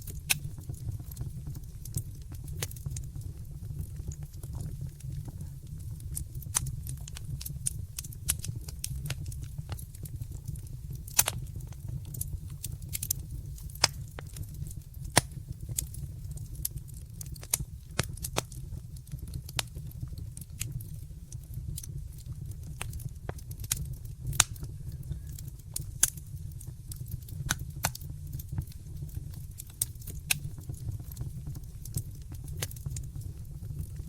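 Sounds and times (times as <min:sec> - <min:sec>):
steady low rumble: 0:00.0 - 0:16.8
wood fire crackling and popping: 0:00.0 - 0:34.0.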